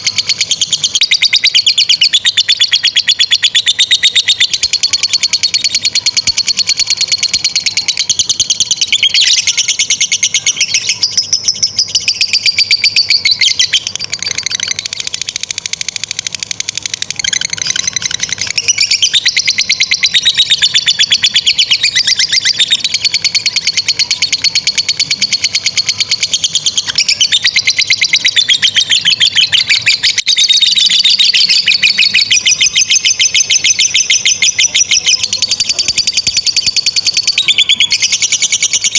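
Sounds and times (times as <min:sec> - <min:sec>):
lovebird shrill chattering trill: 0:00.0 - 0:38.9.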